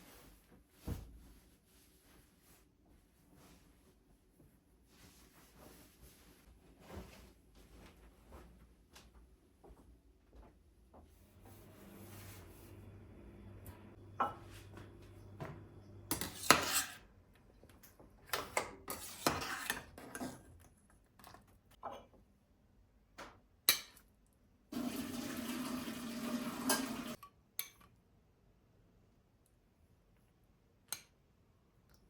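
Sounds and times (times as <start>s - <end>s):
dishes and cutlery clinking: 14.2s - 17.0s
water running: 24.7s - 27.2s.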